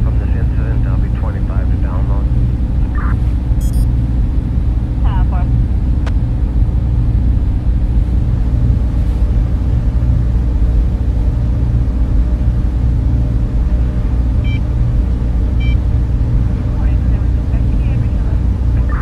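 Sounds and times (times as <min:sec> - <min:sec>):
cooling fans humming: 0:00.0 - 0:19.0
brief high tones: 0:03.6 - 0:03.9.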